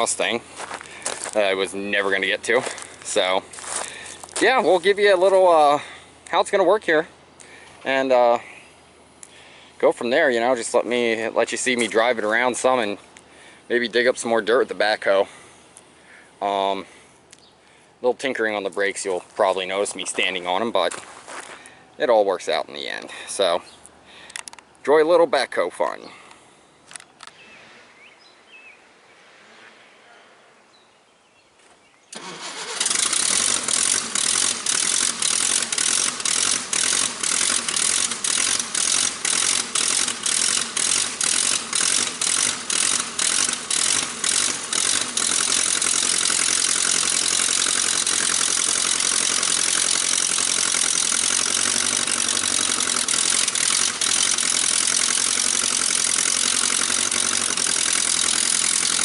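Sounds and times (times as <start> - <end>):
tractor engine cranking and starting: 0.0 - 8.6, 9.2 - 15.6, 32.1 - 59.0.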